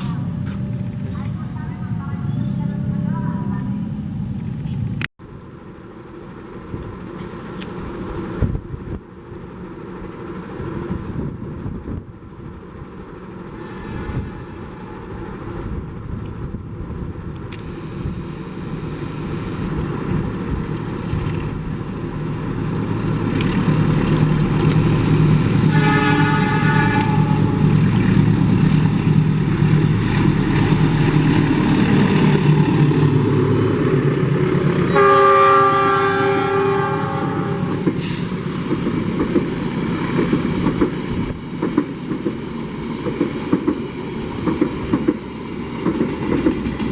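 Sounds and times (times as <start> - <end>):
diesel locomotive engine drone: 0.0 - 46.9
train horn blasts: 13.5 - 15.3, 25.6 - 27.8, 34.8 - 37.8
wheels clattering on rail joints: 37.8 - 46.9.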